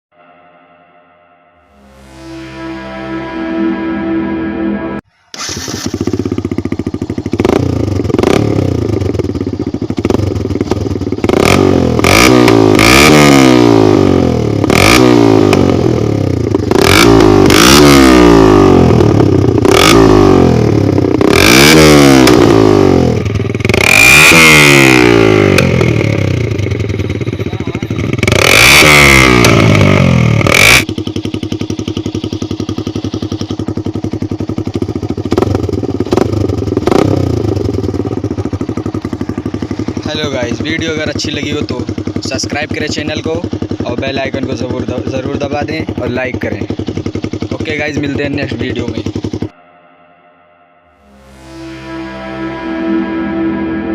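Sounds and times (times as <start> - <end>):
motorcycle engine revving: 1.6 - 49.6, 50.9 - 53.9
engine idling: 5.2 - 11.3, 25.6 - 29.9, 30.5 - 49.5.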